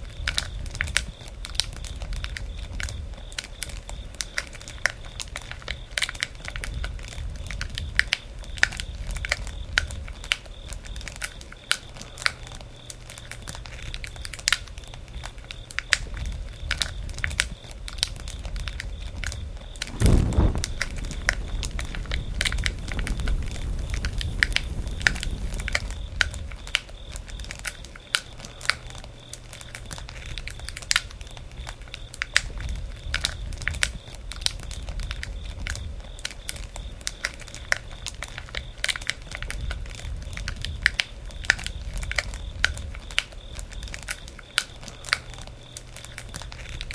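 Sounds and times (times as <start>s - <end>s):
thudding rush: 19.8s - 26.0s
bonfire crackling and popping: 19.8s - 26.2s
low rumble of flames: 19.8s - 26.4s.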